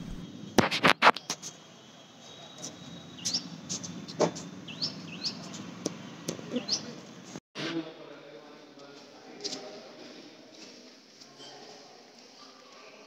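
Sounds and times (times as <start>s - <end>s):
small birds chirping: 1.2s - 7.4s.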